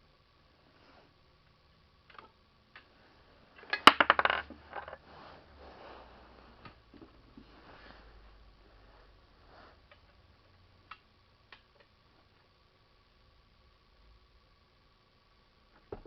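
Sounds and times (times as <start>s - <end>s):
rustling and handling noise: 2.1s - 10.6s.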